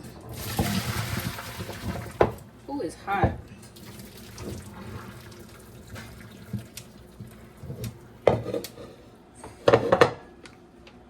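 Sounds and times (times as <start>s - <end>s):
water pouring into a sink: 0.2s - 2.5s, 3.7s - 7.6s.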